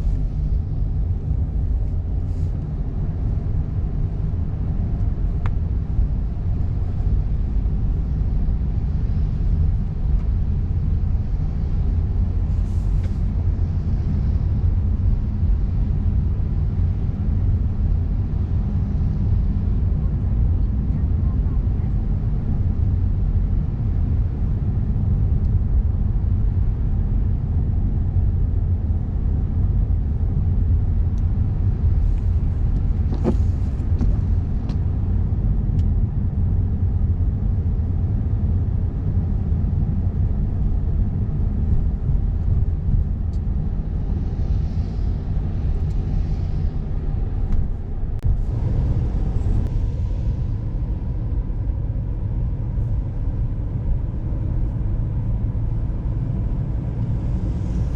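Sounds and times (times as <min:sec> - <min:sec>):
car driving rumble from inside: 0:00.0 - 0:57.9.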